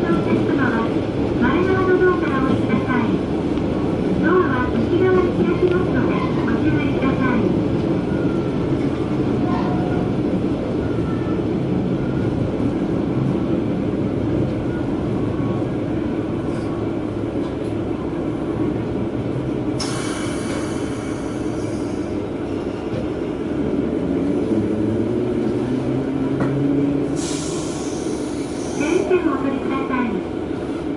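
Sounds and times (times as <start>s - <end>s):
train engine and wheels rumbling: 0.0s - 30.9s.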